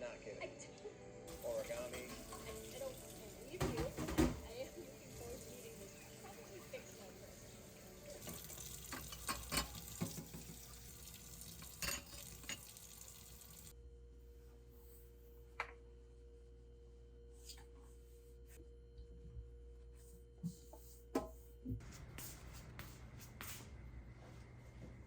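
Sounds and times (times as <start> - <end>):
utensils and dishes clinking: 1.3 - 6.7, 8.0 - 13.4.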